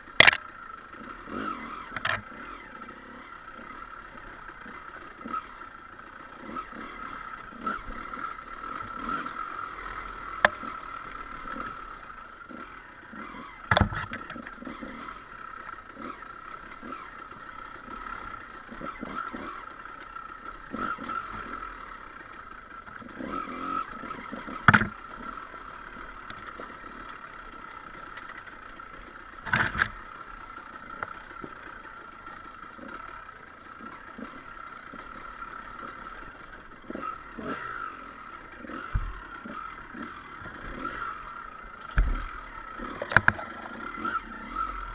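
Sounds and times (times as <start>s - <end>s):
dirt bike engine running: 0.0s - 44.9s
bike knocking over bumps: 24.6s - 25.0s, 41.8s - 42.4s.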